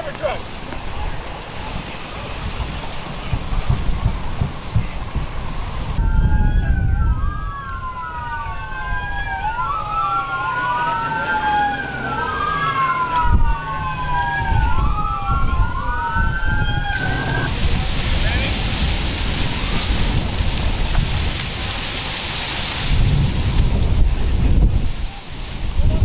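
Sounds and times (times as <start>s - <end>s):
sirens wailing: 5.5s - 17.7s.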